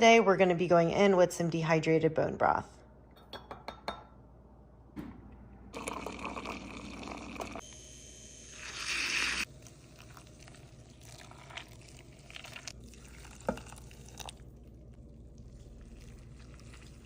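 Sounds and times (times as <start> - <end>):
wet squishing: 9.4 - 17.0.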